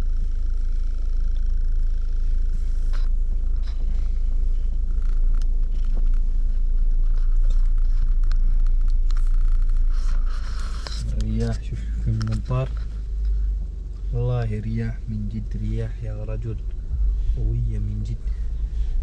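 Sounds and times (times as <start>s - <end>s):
wind buffeting microphone: 16.6s - 19.0s.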